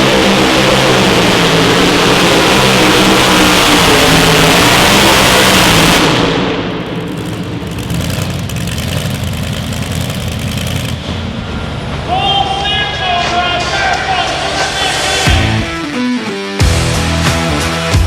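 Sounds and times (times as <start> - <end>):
vehicle engine roaring and idling: 0.0 - 15.8
music: 13.1 - 18.0.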